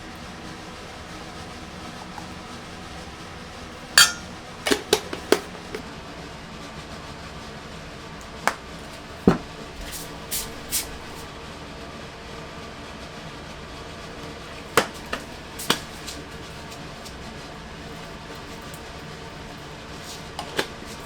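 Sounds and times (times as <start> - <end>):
kitchenware knocks and clinks: 4.0 - 5.8
brief rustling hisses: 9.8 - 11.2.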